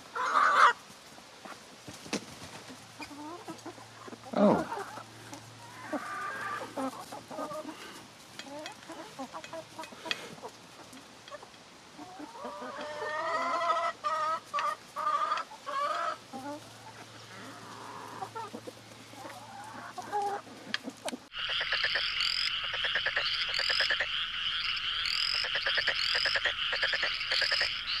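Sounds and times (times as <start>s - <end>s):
chickens clucking: 0.0s - 28.0s
repeating chirp: 21.3s - 28.0s.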